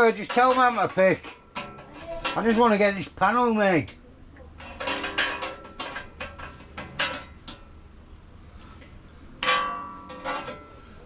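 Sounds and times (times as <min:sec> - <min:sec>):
metal clanks and knocks: 0:00.0 - 0:03.2, 0:04.5 - 0:07.8, 0:09.4 - 0:11.0.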